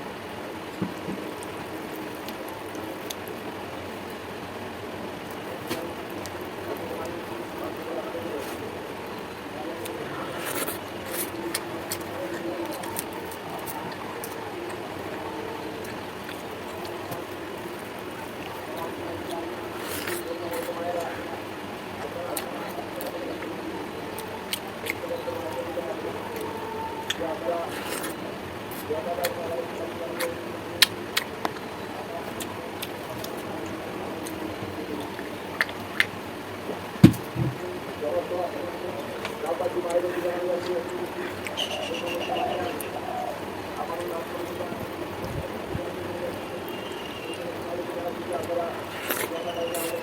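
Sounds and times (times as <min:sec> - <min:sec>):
steady background noise: 0:00.0 - 0:50.0
mouth clicks and crunches: 0:09.7 - 0:15.2, 0:15.8 - 0:21.3, 0:26.4 - 0:37.7, 0:48.2 - 0:50.0
dull thump: 0:37.0 - 0:37.6.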